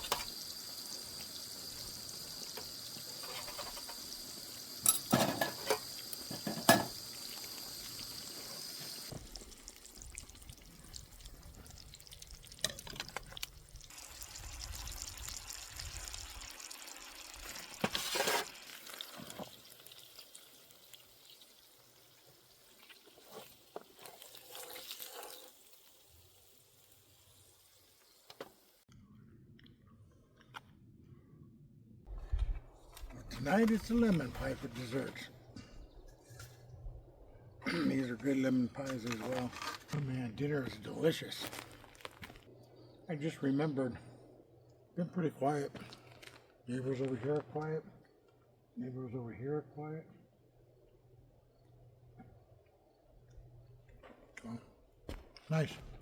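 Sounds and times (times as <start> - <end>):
food sizzling in a pan: 0.0 - 28.8.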